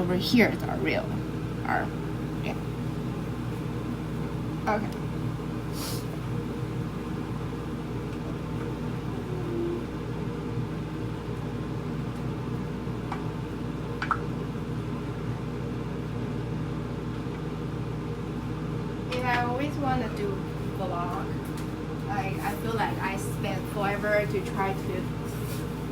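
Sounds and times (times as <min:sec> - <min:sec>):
appliance motor humming: 0:00.0 - 0:15.5.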